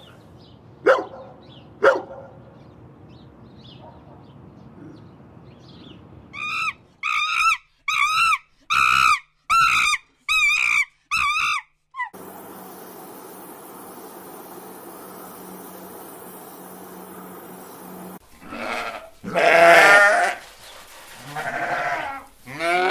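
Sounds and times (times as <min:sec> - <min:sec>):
dog barking: 0:00.8 - 0:02.4, 0:03.8 - 0:04.4
high wavering yelping calls: 0:06.4 - 0:12.2.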